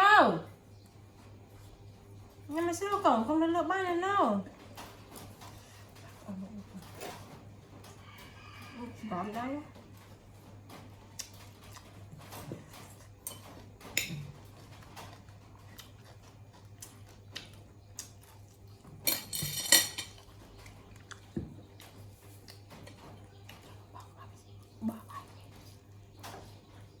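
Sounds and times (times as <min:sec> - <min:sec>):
tableware clinking: 0:19.0 - 0:20.2.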